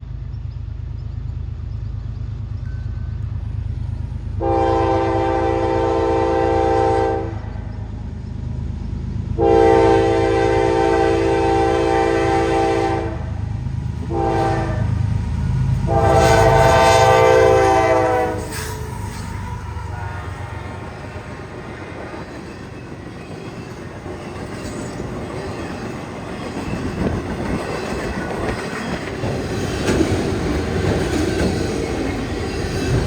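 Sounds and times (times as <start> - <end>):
low rumble of train: 0.0 - 33.0
locomotive air horn blasts: 4.4 - 7.7, 9.4 - 13.4, 14.1 - 15.1, 15.8 - 21.0.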